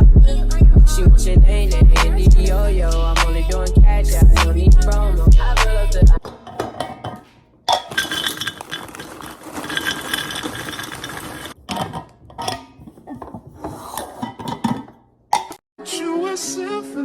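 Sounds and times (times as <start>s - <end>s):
groceries clattering: 6.2s - 15.6s.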